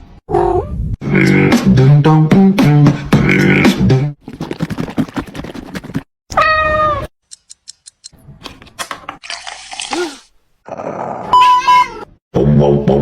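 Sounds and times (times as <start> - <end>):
cat meowing: 6.3 - 7.1.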